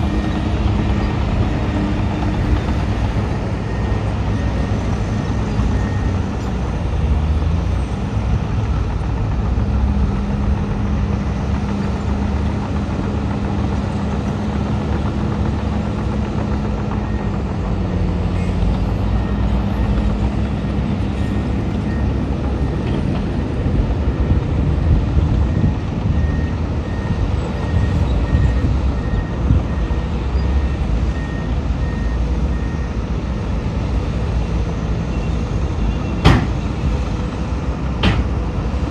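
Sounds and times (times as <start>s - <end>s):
reversing alarm beeping: 0.0s - 6.4s, 21.1s - 23.5s, 25.3s - 33.1s
heavy diesel machinery running: 0.0s - 38.9s.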